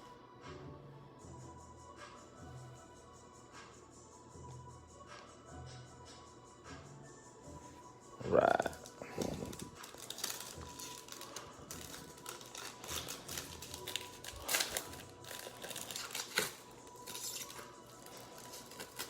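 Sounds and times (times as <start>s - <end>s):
wrapper crinkling and rustling: 8.5s - 19.0s.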